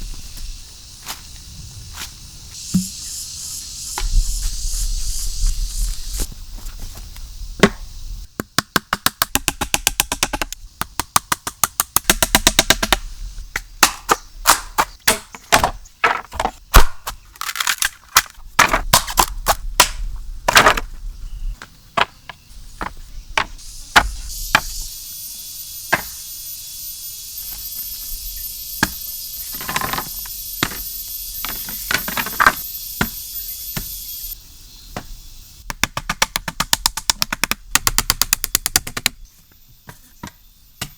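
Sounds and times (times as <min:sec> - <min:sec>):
steady high hiss: 0:00.0 - 0:08.4, 0:22.5 - 0:35.7
chopping blows on wood: 0:02.7 - 0:03.0, 0:07.6 - 0:17.2.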